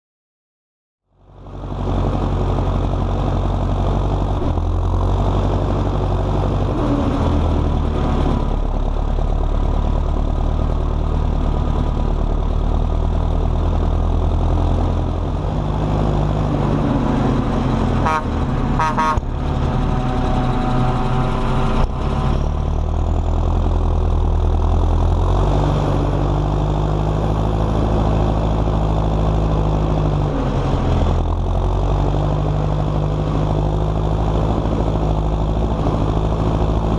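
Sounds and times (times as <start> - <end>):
tractor diesel engine running: 1.1 - 36.9.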